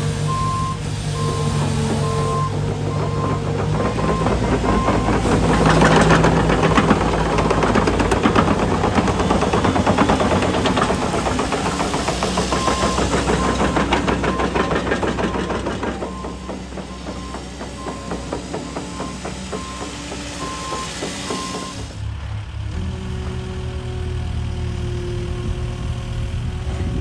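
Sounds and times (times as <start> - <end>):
excavator diesel engine clattering: 0.0 - 27.0
travel alarm beeping: 0.3 - 5.1.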